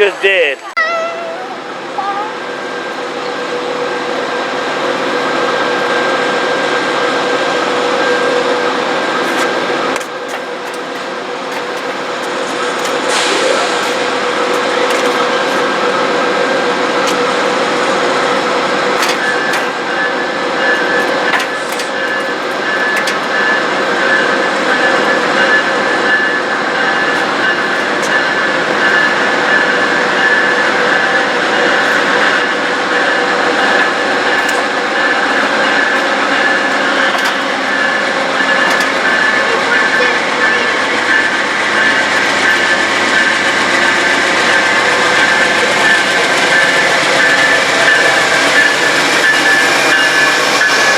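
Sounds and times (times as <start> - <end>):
train rolling past: 0.0 - 50.9
rail clicks: 1.7 - 50.9
high steady tone: 12.3 - 50.9.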